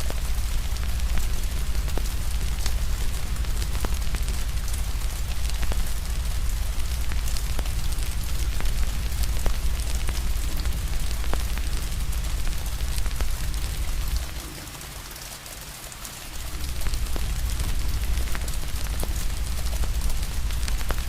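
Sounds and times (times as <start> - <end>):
fire crackling and popping: 0.0 - 14.9, 16.2 - 21.0
rain hissing: 0.0 - 21.0
low rumble: 16.4 - 21.0.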